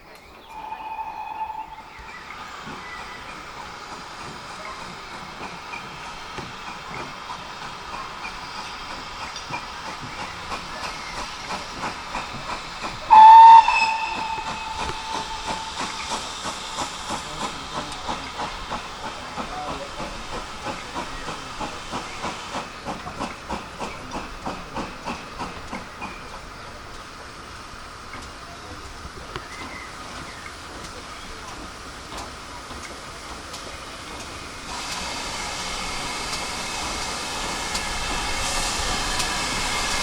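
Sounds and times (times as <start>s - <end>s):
steam locomotive chuffing: 0.0s - 40.0s
steam hissing: 0.4s - 40.0s
steam whistle blast: 0.5s - 2.0s, 13.1s - 16.3s.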